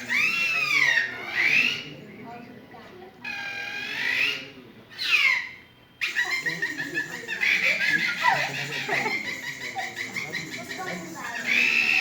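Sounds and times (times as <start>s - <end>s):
children laughing and squealing: 6.2s - 12.0s.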